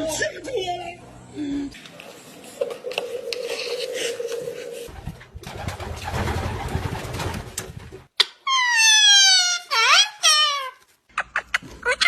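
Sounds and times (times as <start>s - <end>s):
bird cooing: 1.8s - 5.0s.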